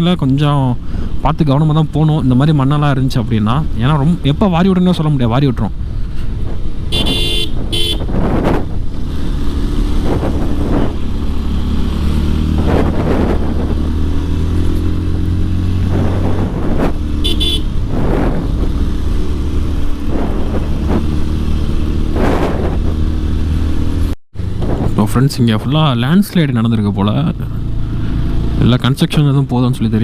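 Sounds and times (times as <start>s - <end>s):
motorcycle engine running: 5.8s - 25.0s
wind on microphone: 6.3s - 23.5s
horn beeps: 6.9s - 8.1s, 17.2s - 17.8s.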